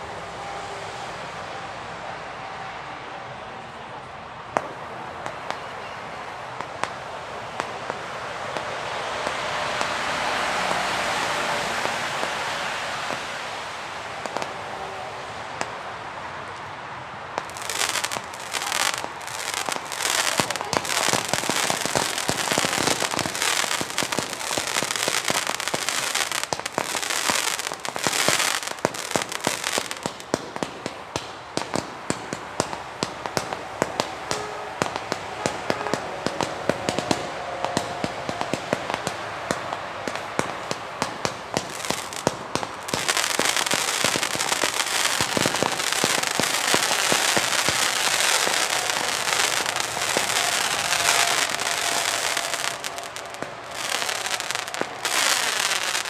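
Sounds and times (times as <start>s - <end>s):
firework battery shots and crackling: 17.4s - 35.6s, 39.5s - 56.0s.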